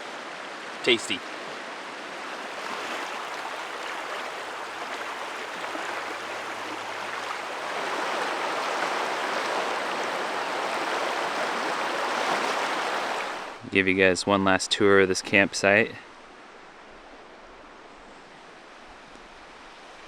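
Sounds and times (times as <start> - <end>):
river water rushing over rocks: 1.4 - 13.6.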